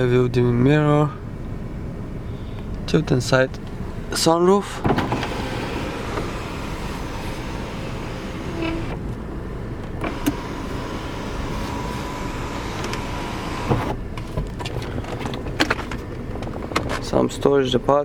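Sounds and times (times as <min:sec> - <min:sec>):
sunroof motor whine: 0:04.8 - 0:09.2, 0:10.0 - 0:14.0
sunroof stopping knock: 0:10.0 - 0:14.6.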